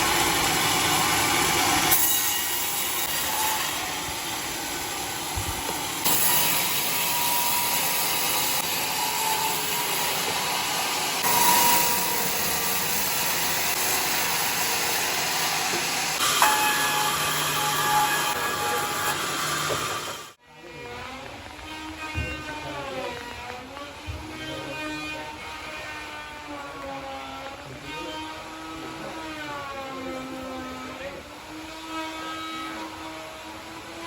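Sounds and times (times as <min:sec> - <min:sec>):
sawmill blade cutting log: 0:00.0 - 0:20.4.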